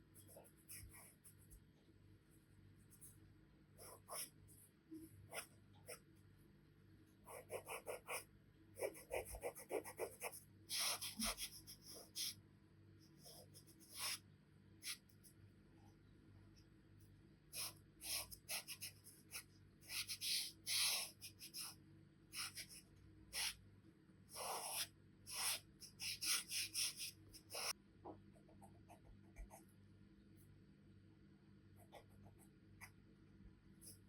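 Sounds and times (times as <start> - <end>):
charcoal pencil scratching on paper: 0.1 - 1.6, 3.8 - 4.6, 7.3 - 12.4, 13.1 - 14.2, 14.8 - 15.1, 17.6 - 23.6, 24.3 - 27.8.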